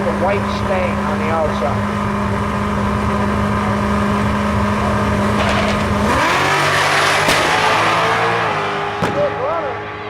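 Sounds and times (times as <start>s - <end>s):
race car engines revving: 0.0s - 10.0s
sharp crack: 7.2s - 7.7s, 9.0s - 9.3s.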